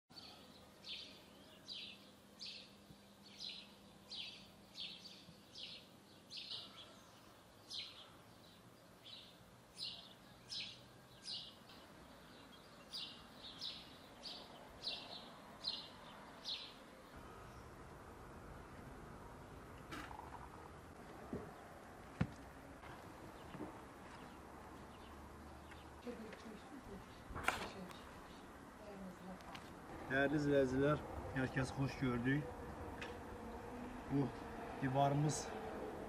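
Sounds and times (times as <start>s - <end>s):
bird chirping: 0.1s - 17.8s, 19.8s - 21.8s
low outdoor noise: 0.1s - 36.0s.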